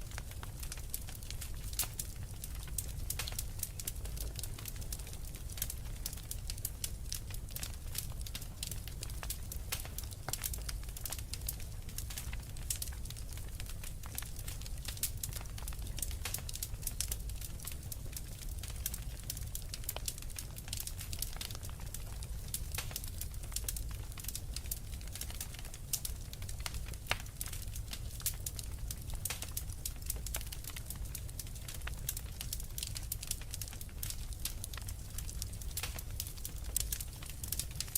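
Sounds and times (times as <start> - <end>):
low fire rumble: 0.0 - 37.9
wood fire crackling: 0.0 - 37.9
small sharp pops and snaps: 0.1 - 37.9.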